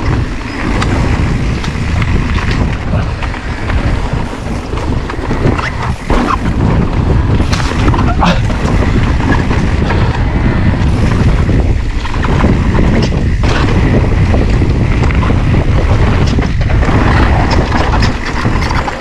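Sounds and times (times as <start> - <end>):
bike knocks and rattles: 0.0 - 19.0
wind buffeting microphone: 0.0 - 19.0.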